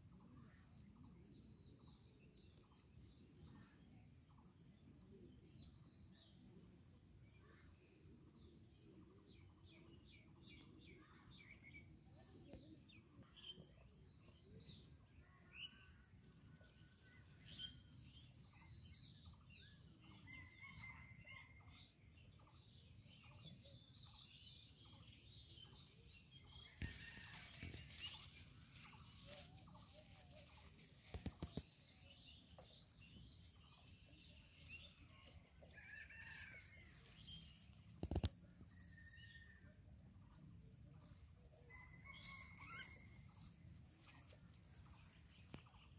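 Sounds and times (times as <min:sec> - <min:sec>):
faint birds chirping: 0:21.9 - 0:45.9.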